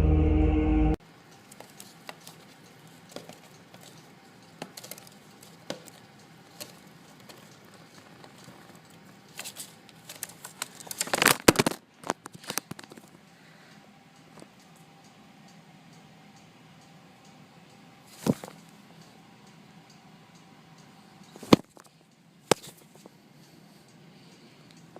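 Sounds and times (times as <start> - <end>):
loud music: 0.0 - 1.0
crackles: 1.1 - 16.0
light clicks and crinkling: 1.2 - 24.9.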